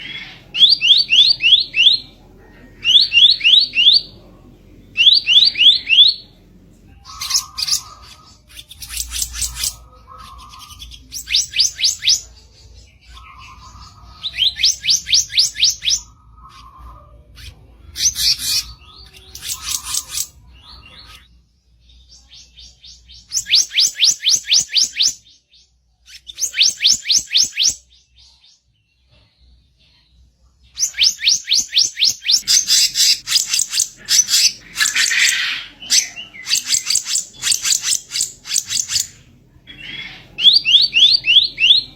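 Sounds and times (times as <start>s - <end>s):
songbird harsh repeated notes: 31.0s - 39.2s.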